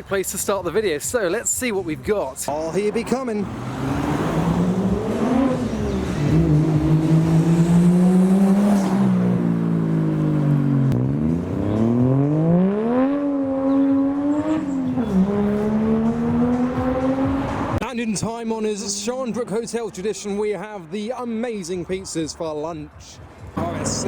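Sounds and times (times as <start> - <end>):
car engine revving: 2.8 - 17.8.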